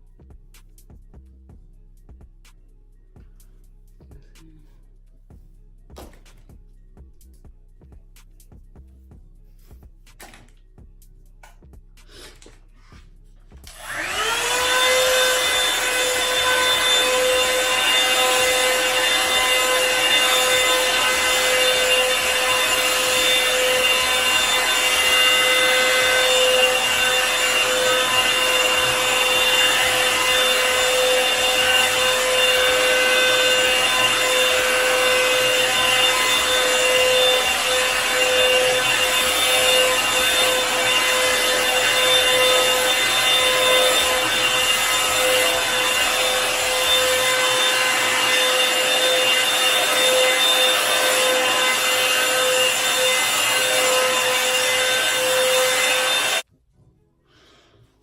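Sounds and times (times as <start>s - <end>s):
hair dryer motor whine: 12.0s - 56.5s.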